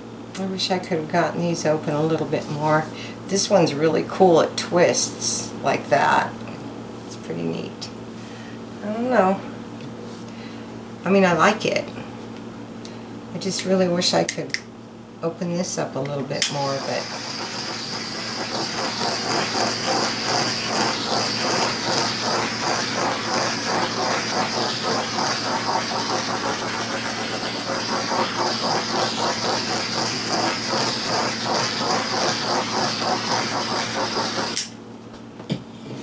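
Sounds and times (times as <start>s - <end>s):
electric blower whining: 16.4s - 34.8s.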